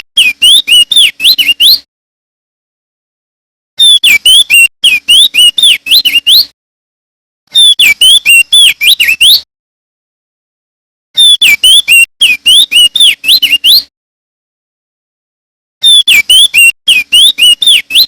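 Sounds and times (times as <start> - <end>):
bird singing whistled notes: 0.2 - 1.9, 3.8 - 6.5, 7.5 - 9.5, 11.2 - 13.9, 15.8 - 18.0.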